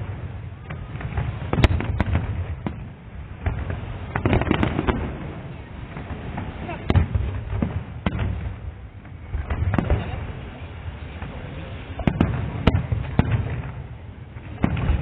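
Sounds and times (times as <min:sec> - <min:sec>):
firework shells bursting: 0:01.0 - 0:10.2.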